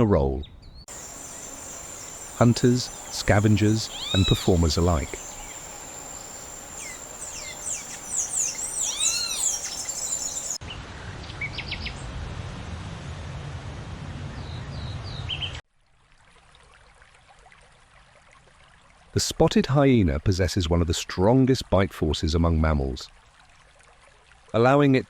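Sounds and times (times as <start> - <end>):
birds chirping: 0.4 - 10.6.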